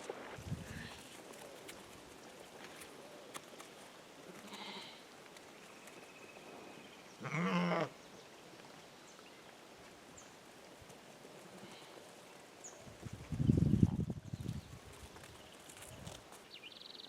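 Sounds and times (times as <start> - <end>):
sheep bleating: 4.3 - 5.0, 7.2 - 7.9.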